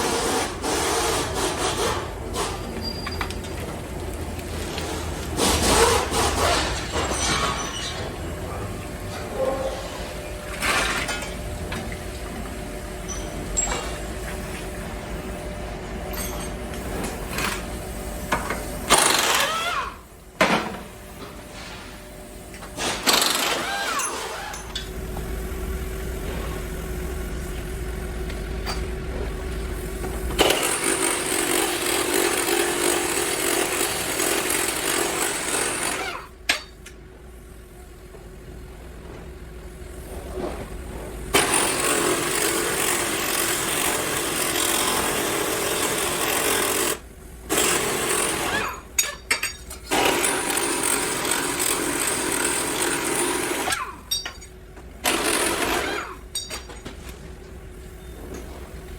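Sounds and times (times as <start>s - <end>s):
power tools running: 18.3s - 20.1s, 22.7s - 36.4s, 41.3s - 49.1s, 49.8s - 54.1s, 55.0s - 56.3s.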